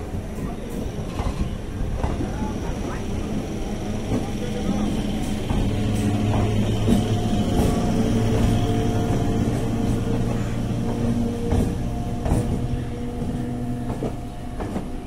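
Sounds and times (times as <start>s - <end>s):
wheels clicking over rail joints: 5.1s - 15.0s.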